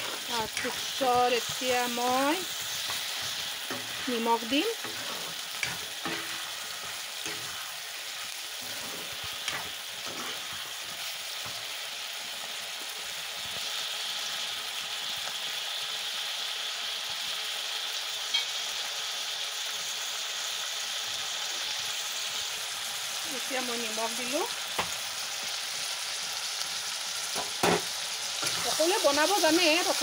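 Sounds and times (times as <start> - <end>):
steel spoon scraping pan: 0.0 - 10.6
meat and onions sizzling in oil: 0.0 - 30.0.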